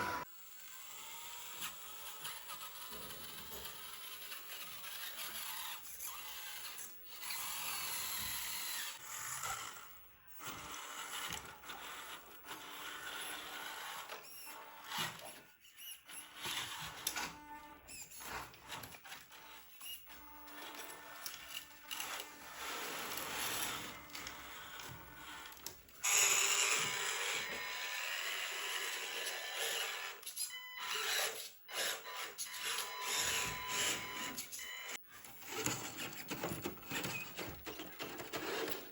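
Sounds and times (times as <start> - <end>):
toy car electric motors whining: 0.0 - 38.9.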